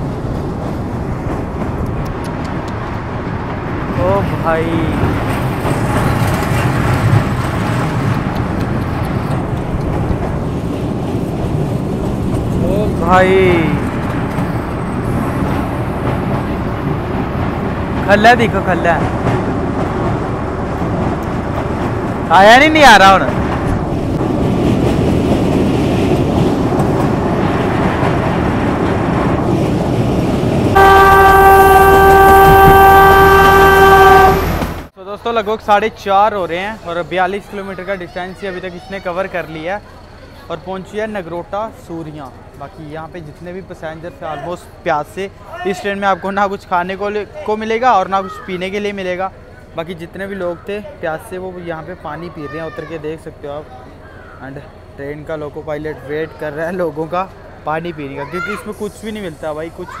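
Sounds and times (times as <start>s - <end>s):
train wheels rumbling on rails: 0.0s - 60.0s
wind: 0.0s - 60.0s
locomotive horn: 30.8s - 34.9s.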